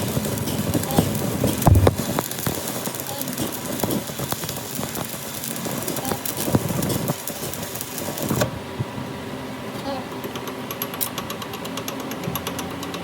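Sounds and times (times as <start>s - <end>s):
crackling hiss: 0.0s - 8.5s
heavy thump: 1.6s - 2.1s
sharp knocks: 1.6s - 2.1s.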